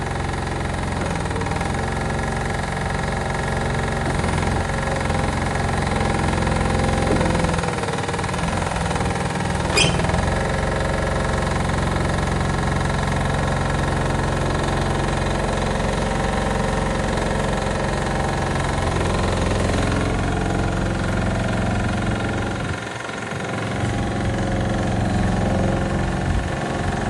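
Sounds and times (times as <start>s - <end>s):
diesel engine running: 0.0s - 27.0s
sharp metal clank: 9.7s - 10.2s.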